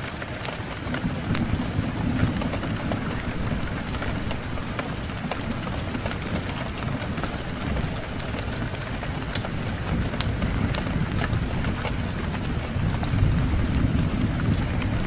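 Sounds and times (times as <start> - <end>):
fireplace fire crackling: 0.0 - 15.0
low rumble of wind: 0.0 - 15.0.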